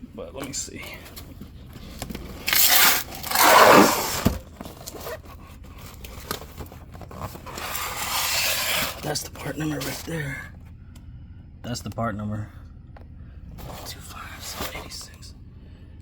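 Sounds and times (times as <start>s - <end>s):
cardboard box scraping and rustling: 2.2s - 9.0s.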